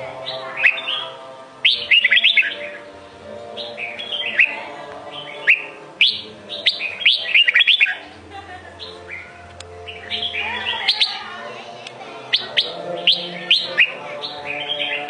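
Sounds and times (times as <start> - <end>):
bird singing whistled phrases: 0.5 - 2.9, 3.6 - 4.6, 5.2 - 8.0, 9.9 - 11.3, 12.3 - 15.0.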